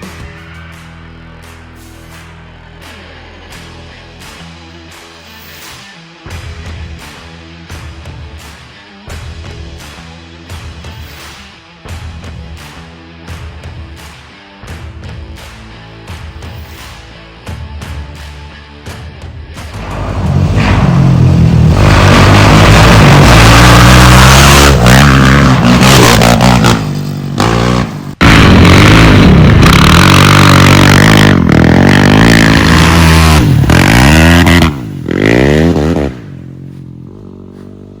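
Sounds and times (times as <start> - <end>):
quad engine revving: 19.7 - 38.0.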